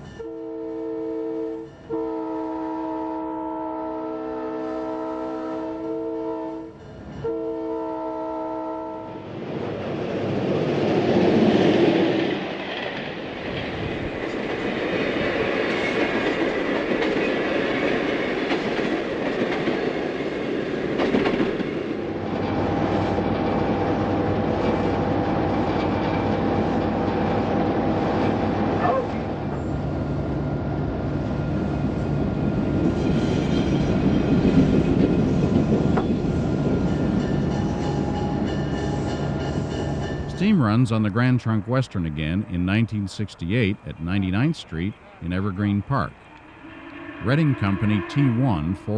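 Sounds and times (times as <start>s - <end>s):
train rumble: 8.9s - 48.9s
train wheels clicking on rails: 9.3s - 23.9s, 24.5s - 27.3s, 31.9s - 40.4s.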